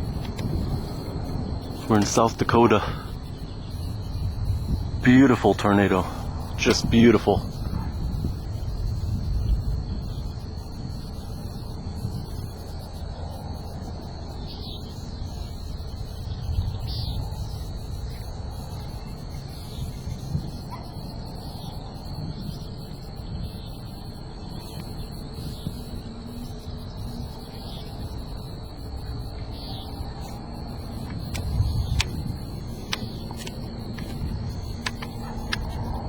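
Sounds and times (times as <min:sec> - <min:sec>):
wind rumbling on microphone: 0:00.0 - 0:36.0
bird chirping: 0:29.2 - 0:36.0.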